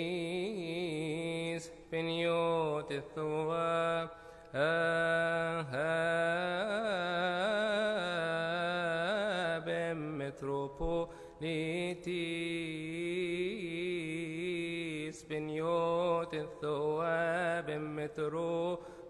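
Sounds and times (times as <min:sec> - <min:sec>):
man chanting a hymn: 0:00.0 - 0:18.9
breaths: 0:04.1 - 0:04.6, 0:11.0 - 0:11.4, 0:18.8 - 0:19.0.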